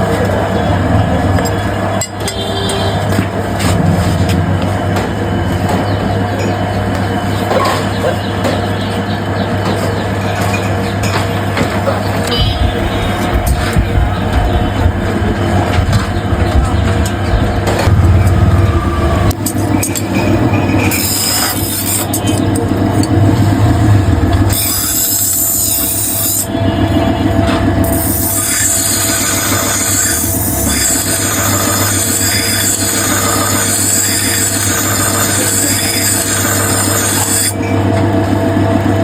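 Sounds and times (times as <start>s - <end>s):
steady motor hum: 0.0s - 39.0s
blade grinding on sharpening wheel: 19.4s - 26.6s, 27.8s - 37.7s.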